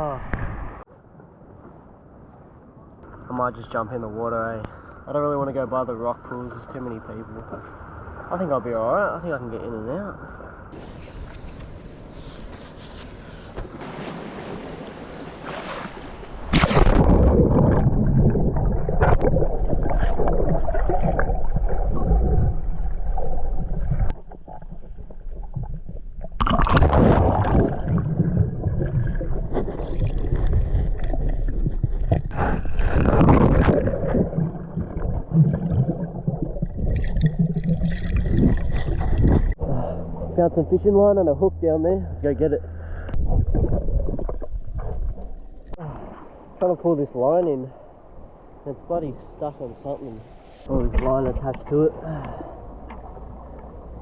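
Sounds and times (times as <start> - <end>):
underwater rumbling and gurgling: 16.1 - 46.4, 50.8 - 54.0.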